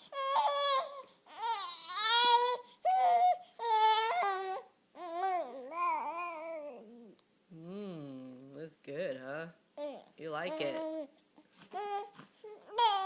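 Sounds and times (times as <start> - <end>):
baby crying: 0.0 - 7.1, 11.7 - 13.0.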